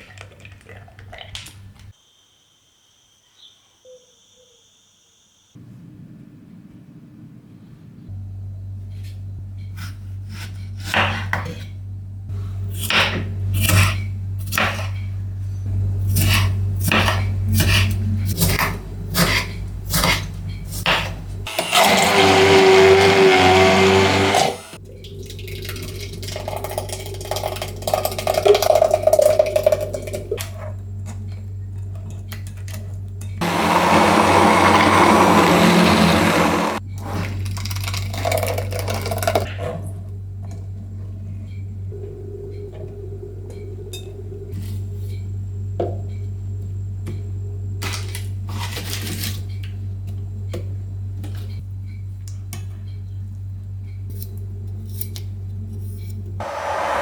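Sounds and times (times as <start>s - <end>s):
electric blender running: 21.5s - 24.8s, 33.4s - 36.8s, 56.4s - 57.0s.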